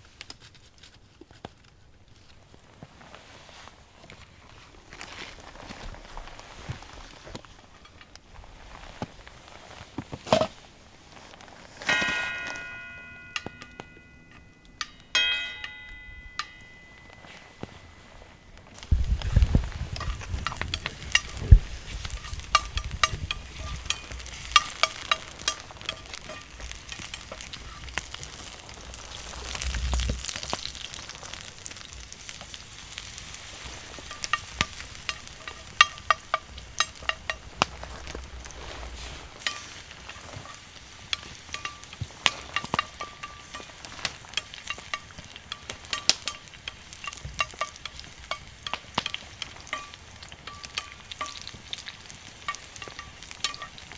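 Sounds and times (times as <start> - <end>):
wood fire crackling and popping: 0.0 - 53.9
steak sizzling on a grill: 16.4 - 53.9.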